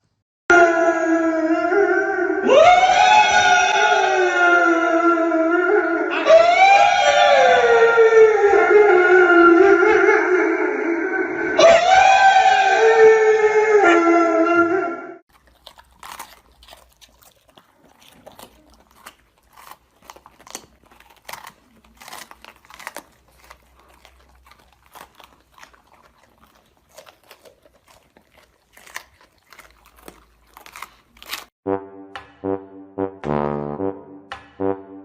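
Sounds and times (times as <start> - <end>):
pet chewing crunchy food: 15.3 - 31.6.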